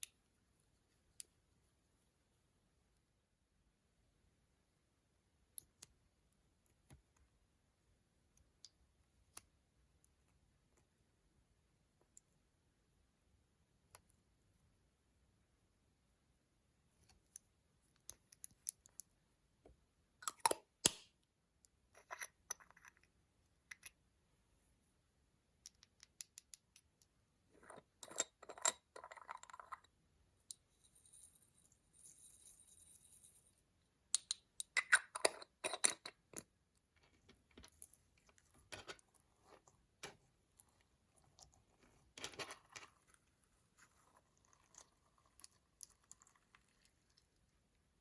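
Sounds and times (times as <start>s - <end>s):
clicks and taps: 17.0s - 23.1s.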